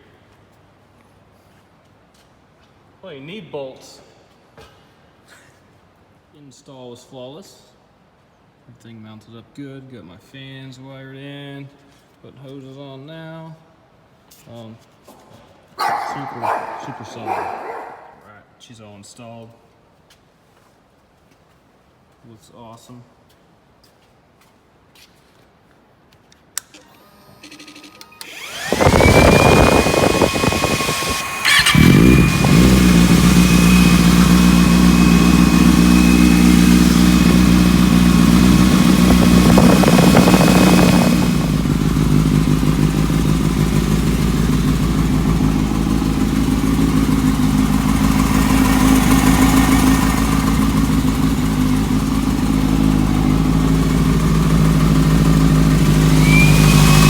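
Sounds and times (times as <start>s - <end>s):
motorcycle engine starting and idling: 26.6s - 57.0s
high steady whine: 27.8s - 57.0s.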